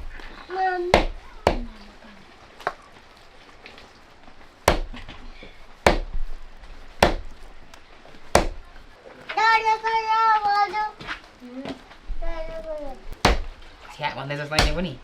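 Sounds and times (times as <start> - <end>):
blade chopping on a board: 0.9 - 1.7, 4.7 - 5.0, 5.8 - 6.2, 7.0 - 7.3, 8.3 - 8.6, 13.2 - 13.6, 14.6 - 14.9.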